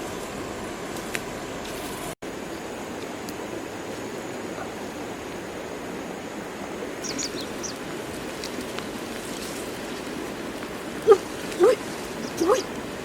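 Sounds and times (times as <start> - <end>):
rushing outdoor ambience: 0.0 - 13.0
high bird chirps: 7.0 - 7.8, 11.1 - 12.7.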